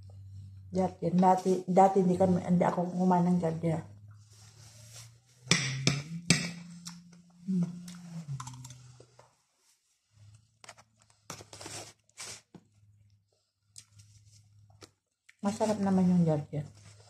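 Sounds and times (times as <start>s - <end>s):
closed-mouth humming: 5.6s - 8.9s
chewing crisp food: 13.0s - 15.4s.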